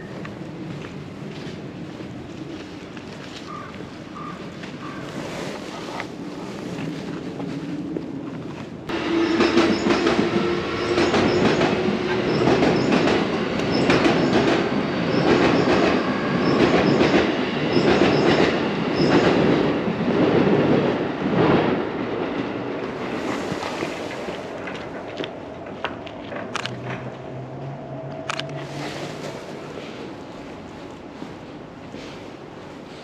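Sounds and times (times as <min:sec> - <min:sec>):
train rumble: 0:00.0 - 0:33.0
train wheels clacking: 0:08.9 - 0:20.8.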